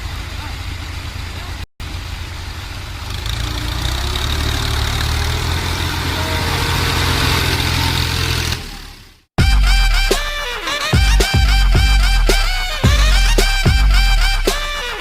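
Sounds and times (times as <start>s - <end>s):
tractor diesel engine running: 0.0s - 9.3s
music: 9.4s - 15.0s.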